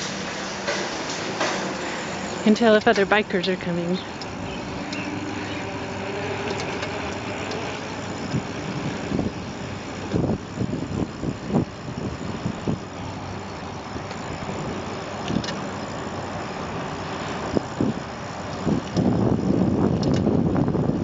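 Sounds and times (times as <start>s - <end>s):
bicycle riding noise: 0.0s - 21.0s
small clicks: 4.0s - 5.6s, 6.4s - 8.5s, 19.9s - 20.4s
wind on microphone: 17.2s - 21.0s.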